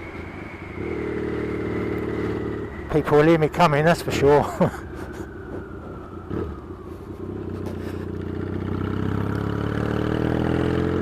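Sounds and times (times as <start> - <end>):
motorcycle engine accelerating: 0.7 - 2.9, 4.2 - 11.0.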